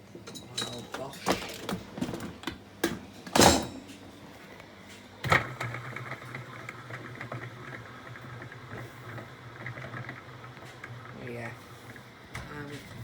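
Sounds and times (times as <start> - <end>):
loud clunk: 3.3 - 3.8.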